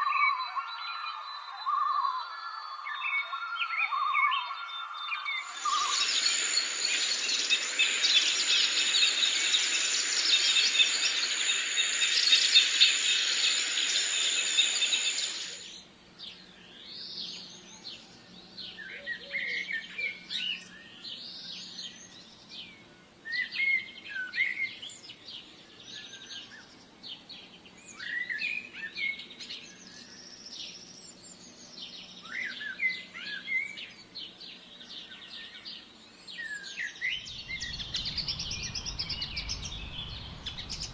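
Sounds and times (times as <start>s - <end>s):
forest birds chirping: 0.0s - 40.9s
high buzzing chorus: 5.4s - 15.8s, 37.2s - 40.9s.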